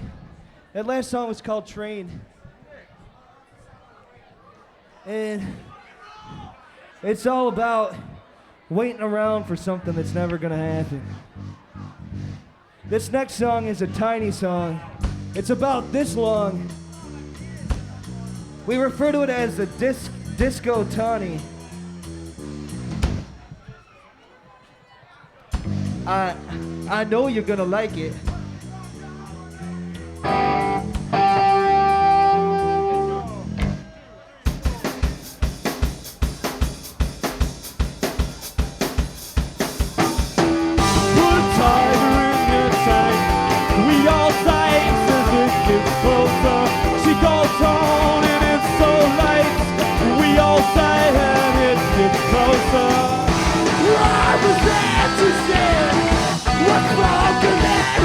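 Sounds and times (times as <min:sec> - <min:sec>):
live rock band with guitars: 0:30.1 - 0:33.8, 0:38.1 - 0:58.0
drums playing steady beat: 0:34.5 - 0:58.0.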